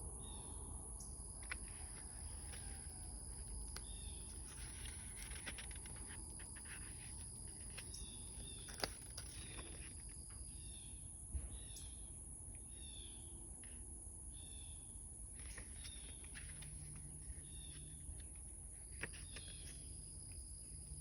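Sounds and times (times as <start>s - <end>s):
paper pages rustling: 1.4s - 10.2s, 15.4s - 21.0s.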